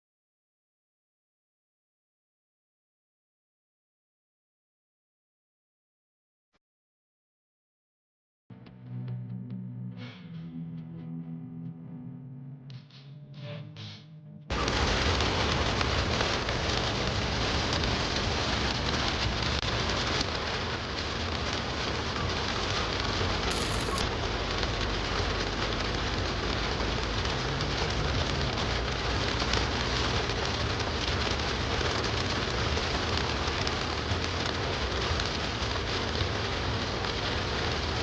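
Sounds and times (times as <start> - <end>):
heavy rain on a car: 14.5 - 38.0.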